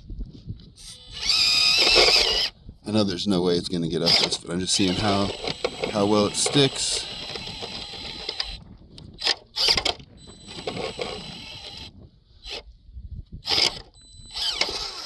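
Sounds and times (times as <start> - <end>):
rc car motor whirring: 0.8 - 2.5, 4.0 - 12.6, 13.4 - 15.0.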